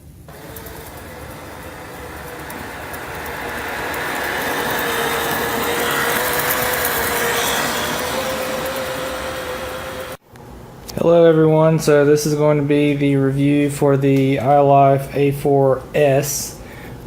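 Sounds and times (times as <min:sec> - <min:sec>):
mechanical whir with humming tone: 0:00.0 - 0:10.5.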